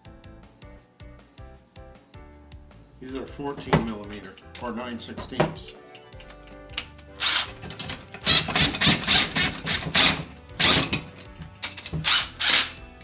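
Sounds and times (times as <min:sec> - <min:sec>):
metal parts clattering: 0:04.1 - 0:12.1.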